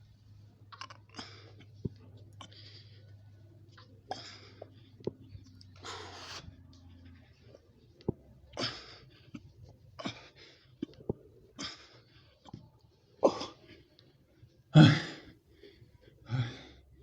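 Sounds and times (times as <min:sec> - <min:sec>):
man breathing hard: 0:14.9 - 0:17.0.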